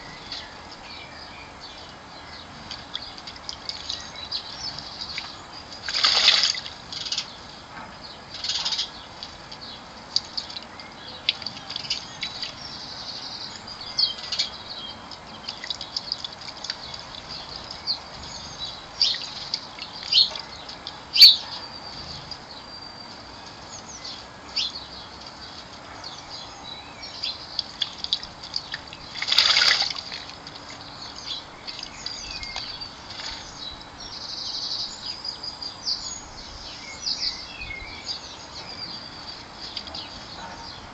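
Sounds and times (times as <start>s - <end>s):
bird splashing in water: 2.6s - 7.3s, 27.5s - 33.6s
bird chirps and calls: 8.1s - 30.2s, 30.8s - 40.9s.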